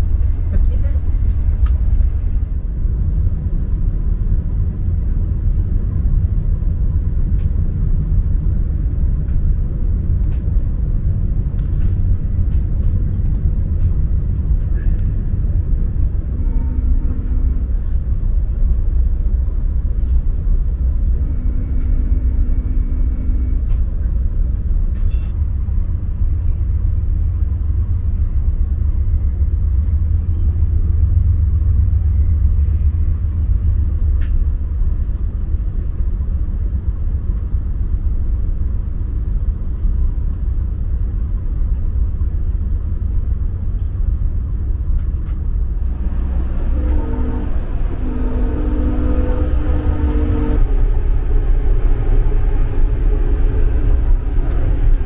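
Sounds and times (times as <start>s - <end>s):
passenger train rumble: 0.0s - 55.0s.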